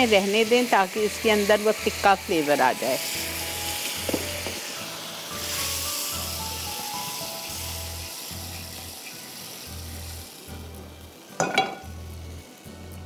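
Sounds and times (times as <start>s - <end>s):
food sizzling in a pan: 0.0s - 13.0s
background music with bass pulse: 11.8s - 13.0s.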